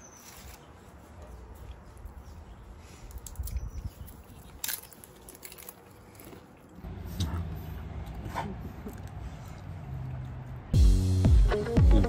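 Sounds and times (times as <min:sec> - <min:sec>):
person chewing: 0:03.6 - 0:06.8.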